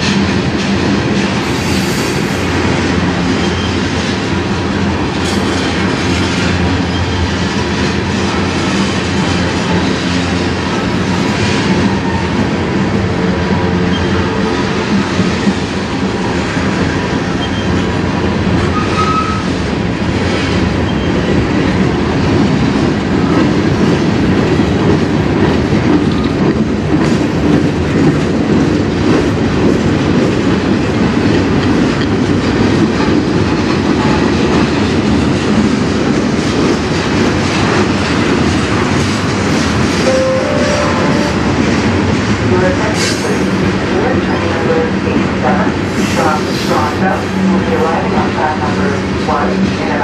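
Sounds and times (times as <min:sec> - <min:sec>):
freight train rumbling past: 0:00.0 - 0:50.0.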